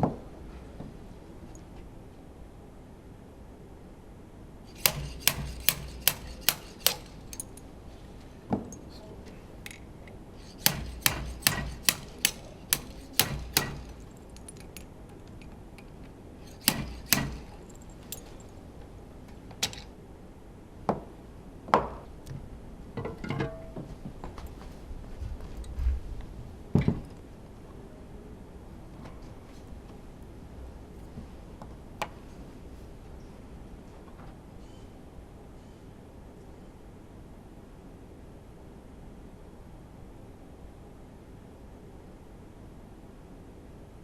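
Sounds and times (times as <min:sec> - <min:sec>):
metal taps on engine parts: 0:04.8 - 0:07.6, 0:10.4 - 0:14.8, 0:16.5 - 0:18.4.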